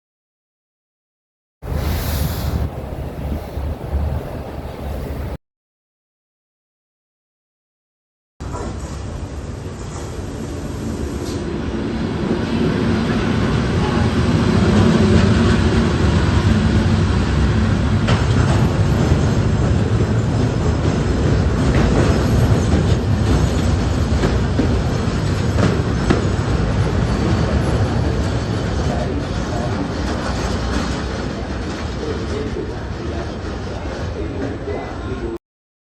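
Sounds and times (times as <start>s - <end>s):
train rumbling past: 1.6s - 5.4s, 8.4s - 35.4s
wheels clacking over rail joints: 18.0s - 34.6s.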